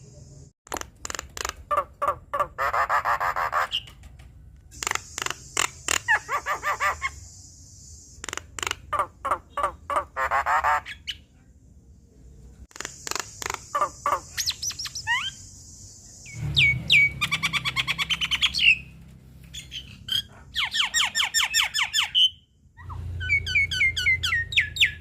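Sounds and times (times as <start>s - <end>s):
bird singing chattering song: 4.7s - 11.3s, 12.7s - 25.0s.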